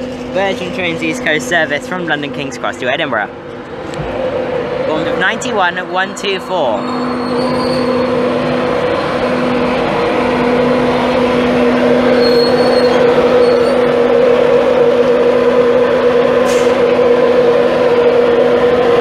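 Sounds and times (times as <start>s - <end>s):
electric locomotive humming: 0.0s - 19.0s.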